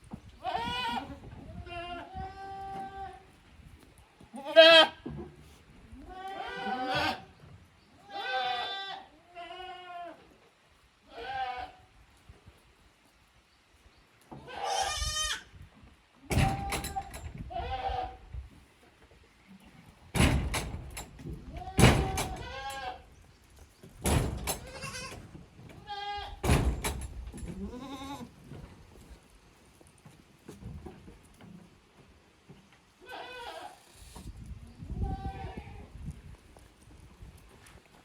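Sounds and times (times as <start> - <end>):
goats bleating: 4.4 - 5.0, 6.0 - 7.3, 8.0 - 10.2, 14.4 - 15.4, 24.6 - 25.2, 27.6 - 28.4
loud thuds and knocks: 16.3 - 17.3, 20.2 - 22.6, 24.0 - 25.0, 26.4 - 27.5.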